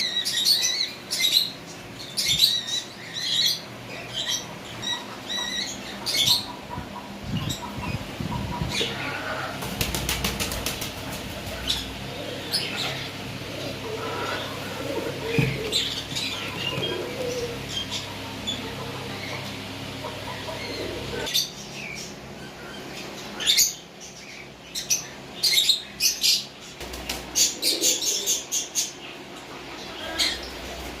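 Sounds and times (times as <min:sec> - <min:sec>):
pigeons flapping wings: 0:09.6 - 0:11.7, 0:26.8 - 0:27.4.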